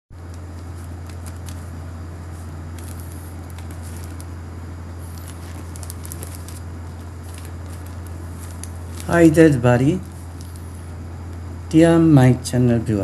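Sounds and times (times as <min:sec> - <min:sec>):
low electrical hum: 0:00.1 - 0:13.0
faint clicks and crackles: 0:00.2 - 0:04.4, 0:05.0 - 0:09.1, 0:10.0 - 0:10.7.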